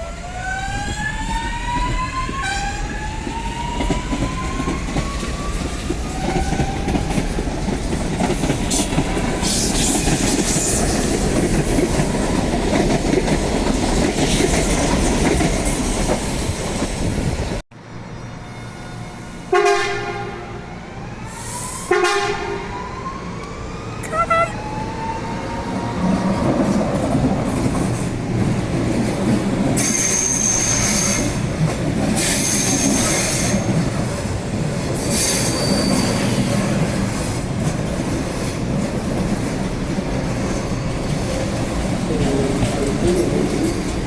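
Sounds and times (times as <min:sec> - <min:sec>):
train horn blasts: 0:19.5 - 0:20.7, 0:21.9 - 0:22.7
high wheel squeal: 0:29.8 - 0:31.4, 0:35.0 - 0:36.5.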